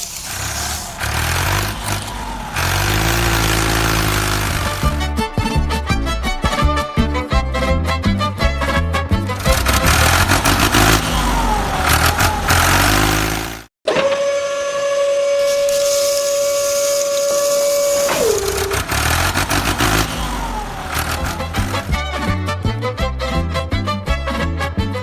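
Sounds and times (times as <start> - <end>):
vehicle motor rumbling: 0.0 - 6.6, 9.2 - 13.7, 18.2 - 22.1
high whine sliding down: 9.6 - 21.9.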